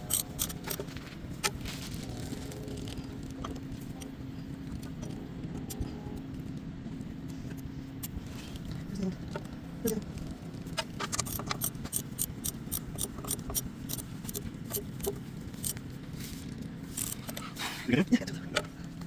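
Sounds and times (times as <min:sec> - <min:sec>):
metallic clicks of hand tools: 0:00.0 - 0:01.6, 0:11.0 - 0:15.8, 0:16.9 - 0:17.5
steady low hum: 0:00.0 - 0:19.0.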